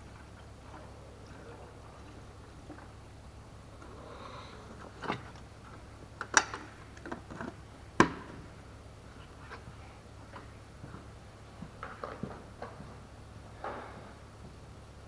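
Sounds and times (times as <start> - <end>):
low steady hum: 0.0 - 15.0
sharp clicks and knocks: 5.0 - 8.4.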